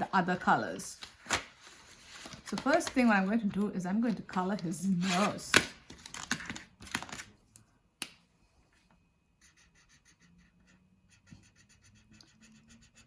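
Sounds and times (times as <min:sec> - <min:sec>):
marker scribbling on paper: 0:09.4 - 0:13.0.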